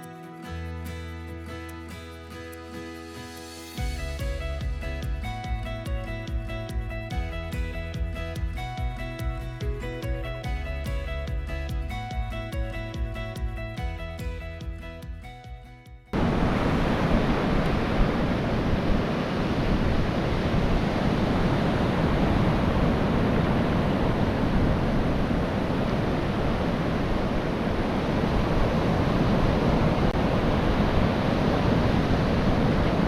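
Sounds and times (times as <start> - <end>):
wind on microphone: 16.1 - 33.0
surf washing on beach: 16.2 - 33.0.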